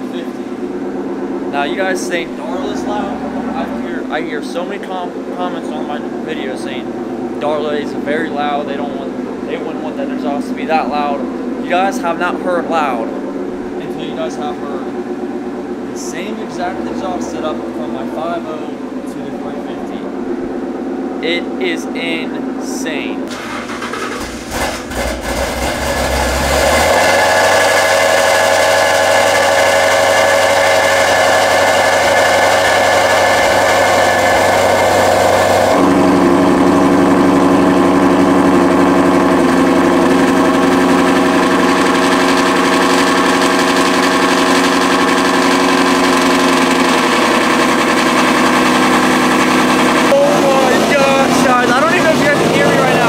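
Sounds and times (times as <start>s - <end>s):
car engine idling loudly: 0.0s - 53.0s.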